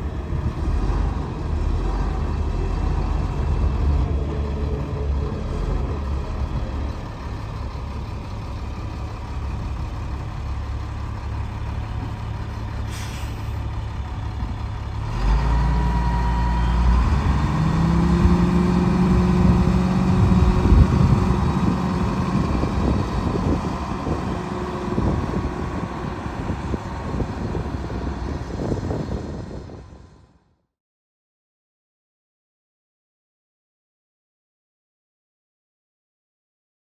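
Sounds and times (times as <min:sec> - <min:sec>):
diesel engine running: 0:00.0 - 0:30.4
short air hiss: 0:12.9 - 0:13.6.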